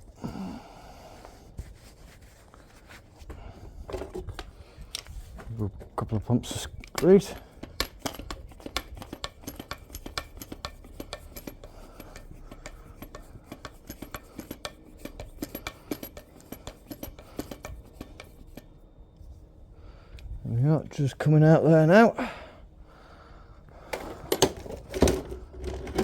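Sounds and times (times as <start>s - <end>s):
small metal parts clinking: 6.5s - 18.7s.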